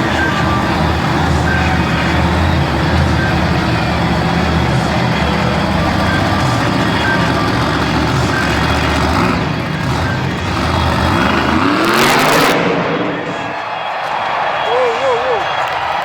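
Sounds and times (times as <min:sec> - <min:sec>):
truck engine running loud: 0:00.0 - 0:14.7.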